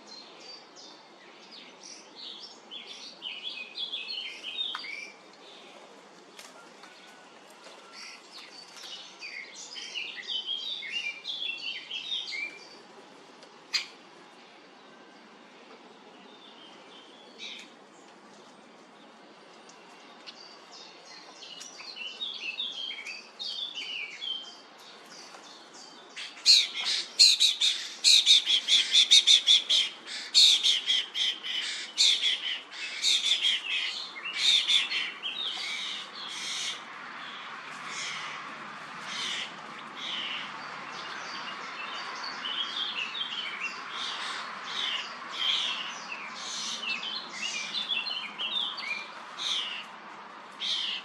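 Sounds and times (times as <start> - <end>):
starlings calling: 26.1 - 38.4, 39.0 - 49.9, 50.6 - 51.0.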